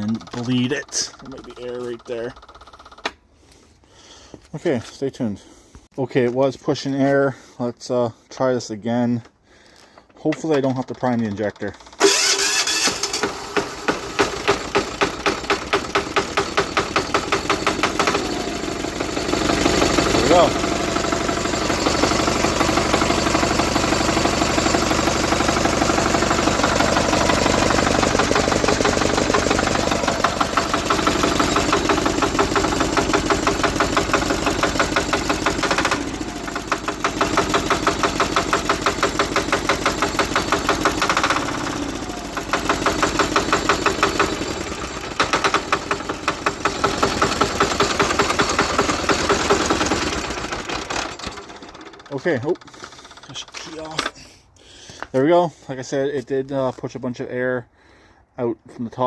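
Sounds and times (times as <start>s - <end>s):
diesel engine knocking: 12.0s - 53.3s.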